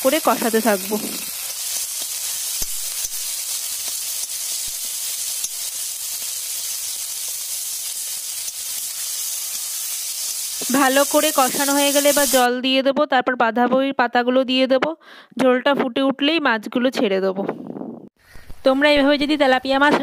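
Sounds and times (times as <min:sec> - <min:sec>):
vegetables sizzling in oil: 0:00.0 - 0:12.5.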